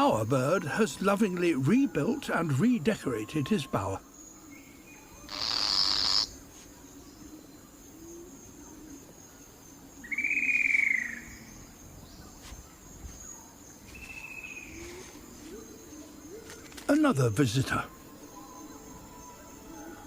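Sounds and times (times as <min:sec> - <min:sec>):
faint forest background: 0:00.0 - 0:20.0
bird whistled call: 0:10.1 - 0:11.3.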